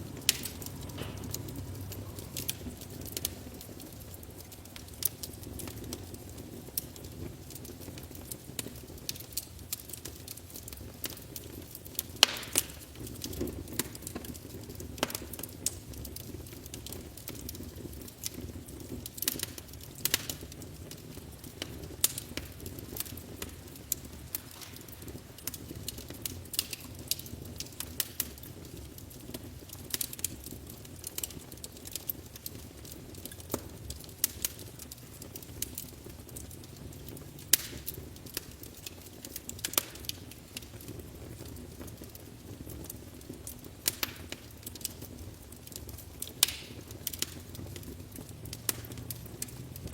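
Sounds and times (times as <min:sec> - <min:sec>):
fire crackles and pops: 0:00.0 - 0:49.9
wood fire burning: 0:00.0 - 0:49.9.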